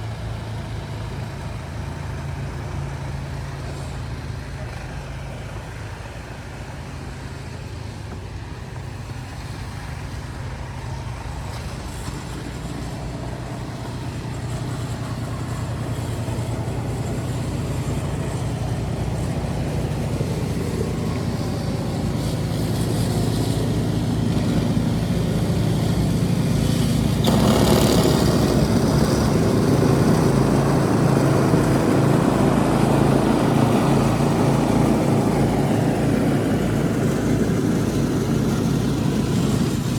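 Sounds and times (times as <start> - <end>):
vehicle engine humming: 0.0 - 39.9
rushing noise: 18.4 - 39.9.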